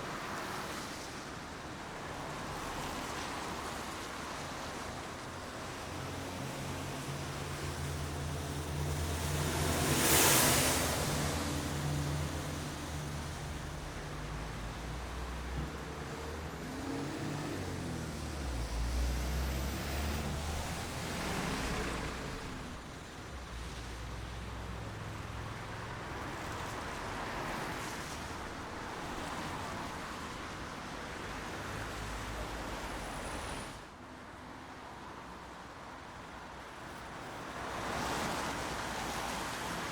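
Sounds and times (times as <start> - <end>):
steady rain: 2.0 - 33.2.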